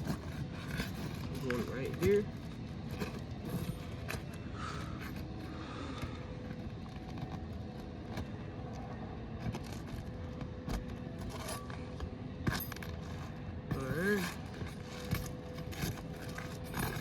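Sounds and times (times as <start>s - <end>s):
hand tools scraping and clicking: 0.0s - 17.0s
steady background hum: 0.0s - 17.0s.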